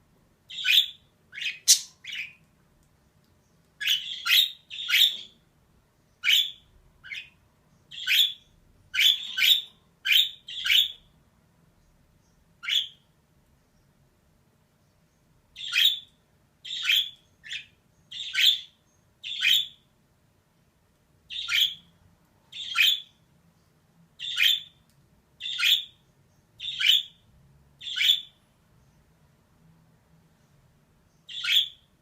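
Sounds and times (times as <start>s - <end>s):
budgerigar chirping: 0.5s - 2.4s, 3.8s - 5.3s, 6.2s - 11.0s, 12.6s - 13.0s, 15.6s - 19.8s, 21.3s - 21.9s, 22.5s - 23.2s, 24.2s - 24.8s, 25.4s - 26.0s, 26.6s - 27.2s, 27.8s - 28.4s, 31.2s - 31.9s.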